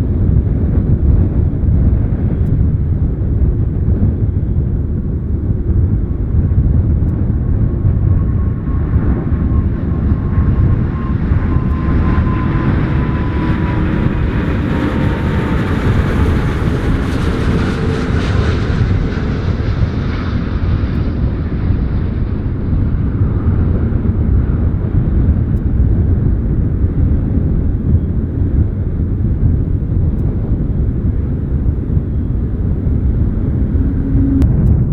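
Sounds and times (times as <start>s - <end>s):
jet airliner passing overhead: 0.0s - 34.9s
engine whine sliding down: 7.1s - 19.4s, 29.8s - 34.9s.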